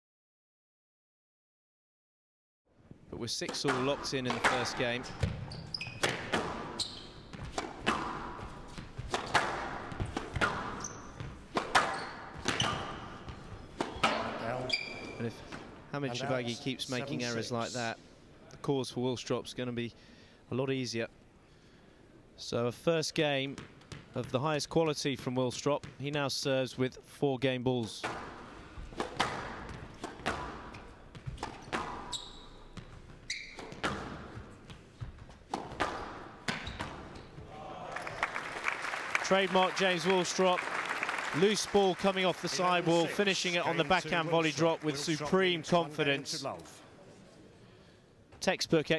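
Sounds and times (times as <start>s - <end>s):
squash ball hitting rackets and walls: 3.4s - 15.8s, 28.0s - 37.5s
shoe squeaks on floor: 5.2s - 7.5s, 10.7s - 15.2s, 31.3s - 33.9s, 36.5s - 37.4s.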